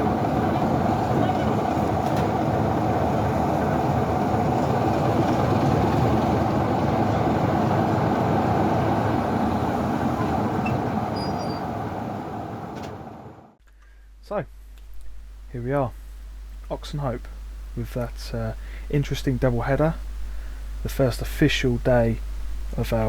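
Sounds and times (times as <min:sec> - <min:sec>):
train rumbling: 0:00.0 - 0:13.6.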